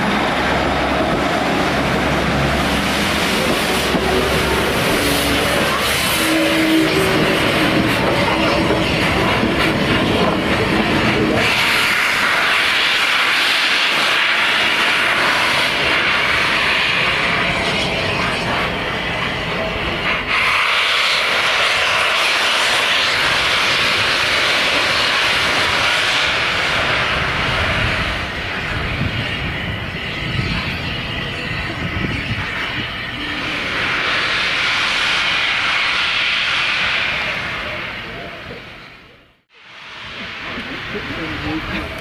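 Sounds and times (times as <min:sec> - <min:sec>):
train rushing past: 0:00.0 - 0:42.0.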